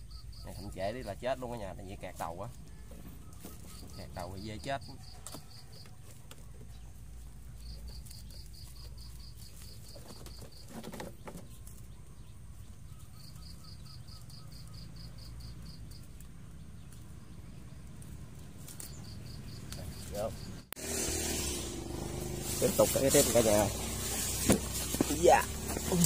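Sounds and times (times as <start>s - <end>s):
small bird chirping: 0.0s - 20.7s
low steady rumble: 15.0s - 26.0s.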